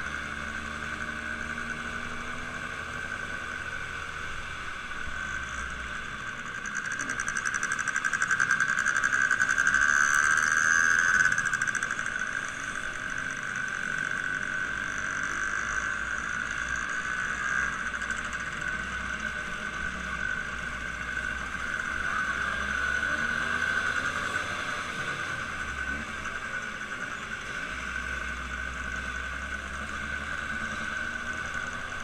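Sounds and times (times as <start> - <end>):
engine running steadily: 0.0 - 32.0.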